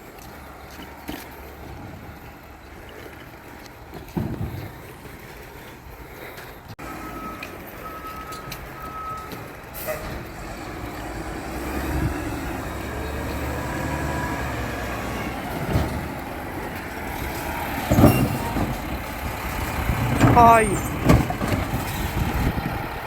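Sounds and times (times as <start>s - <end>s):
diesel truck engine: 0.0s - 23.0s
truck backup beeps: 6.8s - 23.0s.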